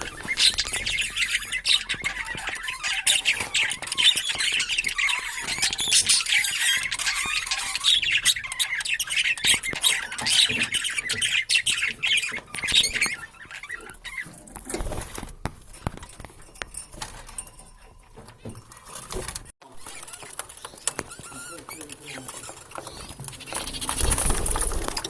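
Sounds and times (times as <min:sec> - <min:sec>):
budgerigars chattering: 0:00.0 - 0:14.5.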